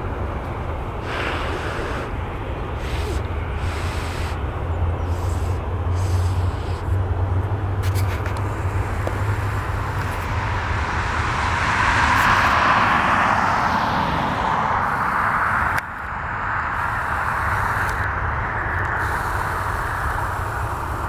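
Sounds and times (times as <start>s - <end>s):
passing vehicle rushing: 7.0s - 17.0s.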